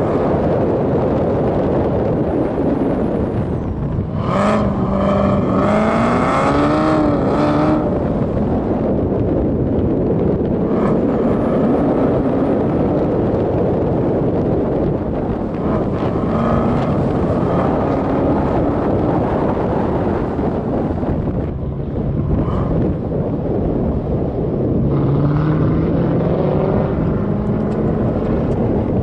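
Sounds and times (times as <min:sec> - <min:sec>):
car engine accelerating: 0:00.0 - 0:29.0
wind rush on microphone: 0:00.0 - 0:29.0.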